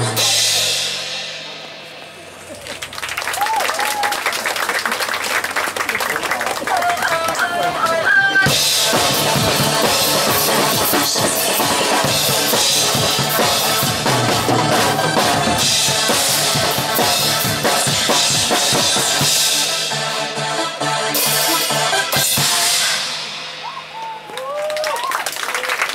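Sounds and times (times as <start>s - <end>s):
drum kit playing: 0.0s - 2.6s, 7.8s - 20.4s, 21.1s - 24.3s
pop backing track with bass: 0.0s - 3.5s, 7.1s - 24.2s.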